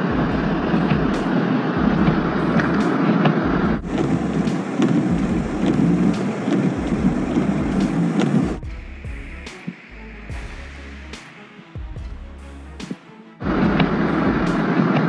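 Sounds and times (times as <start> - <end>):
street traffic rumble: 0.2 - 9.5.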